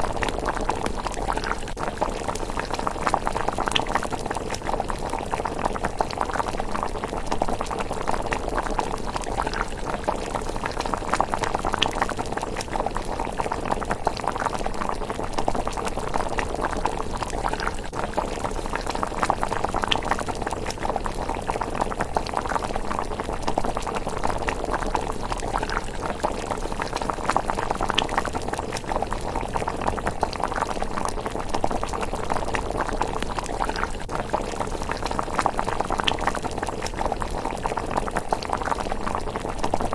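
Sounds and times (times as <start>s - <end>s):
porridge bubbling and popping: 0.0s - 39.9s.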